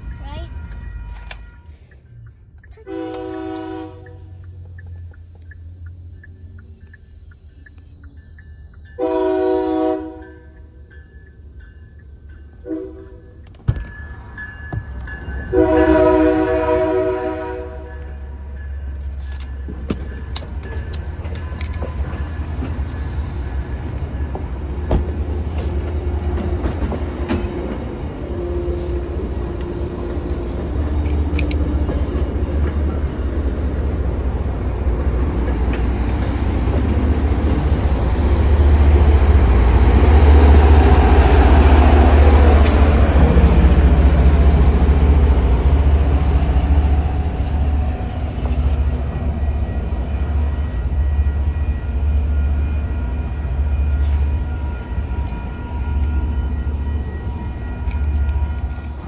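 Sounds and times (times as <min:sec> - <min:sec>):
diesel locomotive rumble: 0:00.0 - 0:59.0
rail clicks: 0:00.0 - 0:59.0
train wheel noise: 0:00.0 - 0:59.0
train horn: 0:02.8 - 0:04.4, 0:09.0 - 0:10.4, 0:12.6 - 0:13.3, 0:15.5 - 0:18.2.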